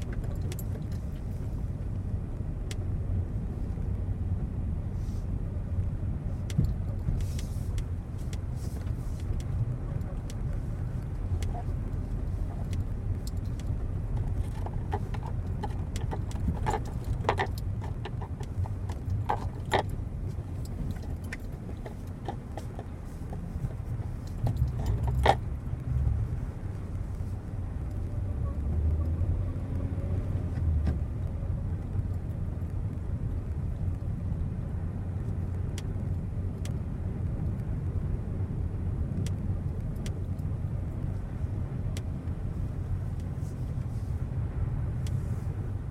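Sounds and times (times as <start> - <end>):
squeaks and clicks under car: 0.0 - 2.9, 6.2 - 37.8, 39.0 - 45.9
car engine and road rumble: 0.0 - 45.9.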